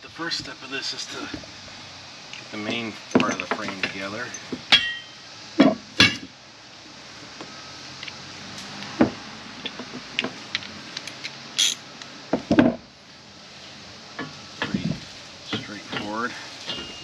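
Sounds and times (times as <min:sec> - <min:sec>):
metal frame pieces knocking and clinking: 0:02.7 - 0:06.3, 0:15.6 - 0:17.0.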